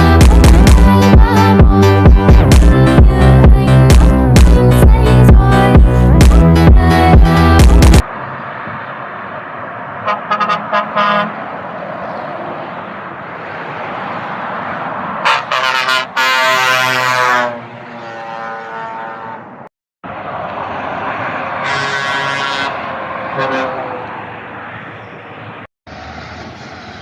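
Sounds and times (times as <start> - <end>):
road traffic noise: 0.0 - 27.0
truck air horn: 10.0 - 11.4, 15.2 - 19.7, 21.6 - 24.0.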